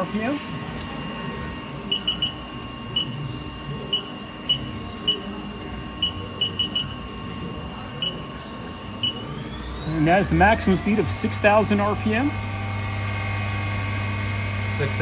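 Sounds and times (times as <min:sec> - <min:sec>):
lathe spindle high whine: 0:00.0 - 0:15.0
short electronic beeps: 0:01.9 - 0:03.2, 0:06.0 - 0:07.0, 0:08.0 - 0:08.2.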